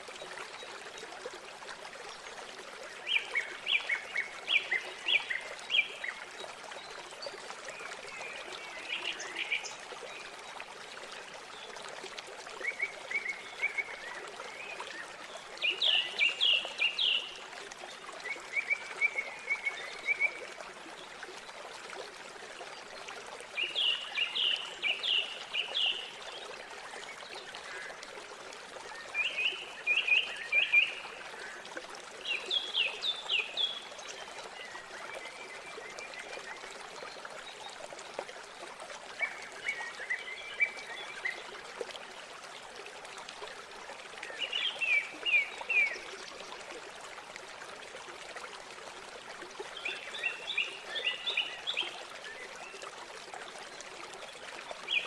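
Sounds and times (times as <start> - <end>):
river water running: 0.0 - 55.0.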